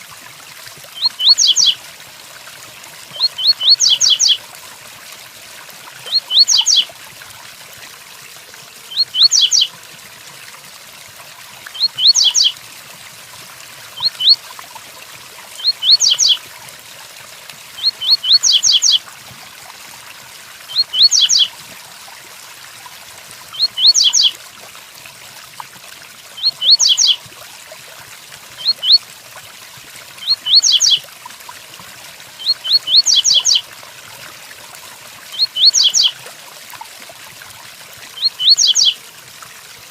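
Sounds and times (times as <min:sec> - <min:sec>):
bird singing whistled notes: 0:01.0 - 0:01.8, 0:03.2 - 0:04.4, 0:06.1 - 0:06.9, 0:08.9 - 0:09.7, 0:11.8 - 0:12.5, 0:14.0 - 0:14.4, 0:15.6 - 0:16.4, 0:17.8 - 0:19.0, 0:20.7 - 0:21.5, 0:23.6 - 0:24.3, 0:26.4 - 0:27.2, 0:28.6 - 0:29.0, 0:30.2 - 0:31.0, 0:32.4 - 0:33.6, 0:35.4 - 0:36.1, 0:38.2 - 0:39.0.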